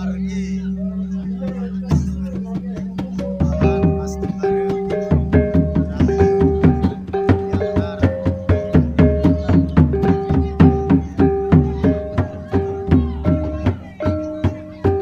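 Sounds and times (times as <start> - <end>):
ringing pitched notes: 0.0 - 15.0
fast drum strokes: 1.5 - 15.0.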